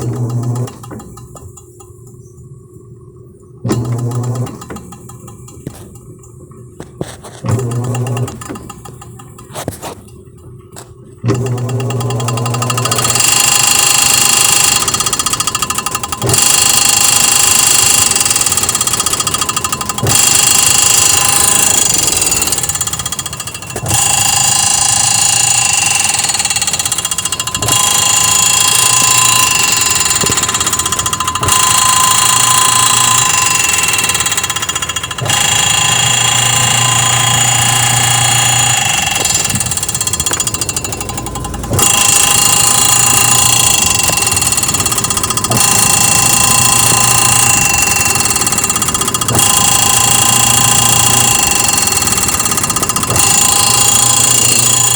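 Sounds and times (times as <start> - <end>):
washing machine spinning: 0.0 - 54.9
loud metal noise: 11.3 - 54.9.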